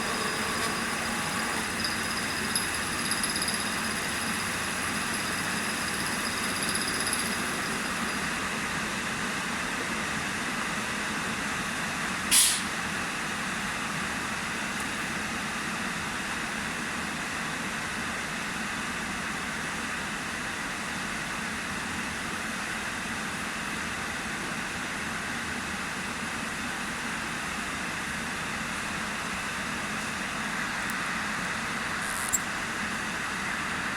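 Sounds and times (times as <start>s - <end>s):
engraving machine motor whirring: 0.0s - 8.3s.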